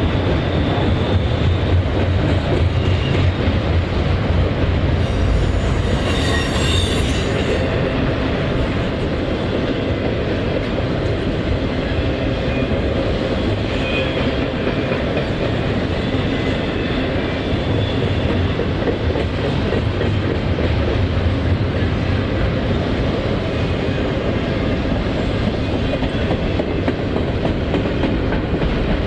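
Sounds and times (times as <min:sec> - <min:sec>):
freight train wheels rumbling and clacking: 0:00.0 - 0:29.0.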